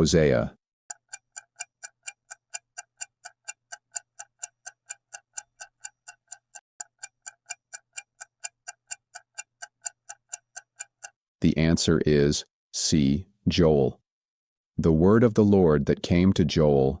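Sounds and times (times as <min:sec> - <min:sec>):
clock ticking: 0:00.9 - 0:11.7.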